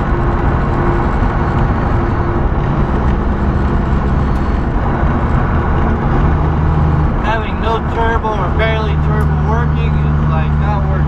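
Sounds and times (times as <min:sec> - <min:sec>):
road noise: 0:00.0 - 0:11.0
truck diesel engine droning: 0:00.0 - 0:11.0.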